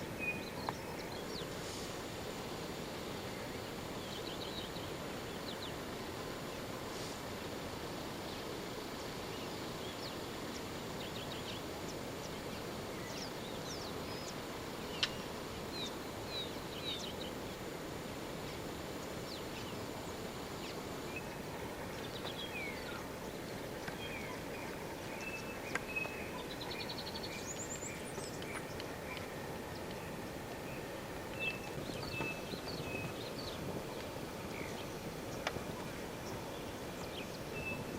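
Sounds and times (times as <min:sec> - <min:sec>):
background hiss: 0:00.0 - 0:37.9
birds chirping and trilling: 0:18.5 - 0:37.9.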